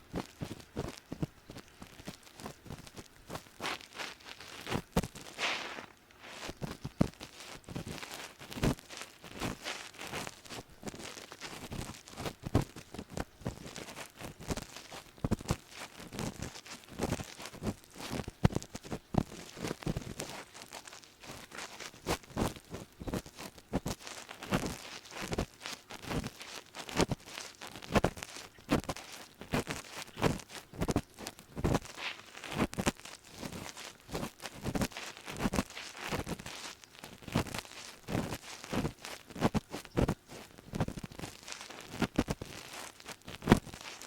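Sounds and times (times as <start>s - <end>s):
soft rustling: 0.0s - 44.0s
ear pick scraping inside ear: 2.8s - 7.0s.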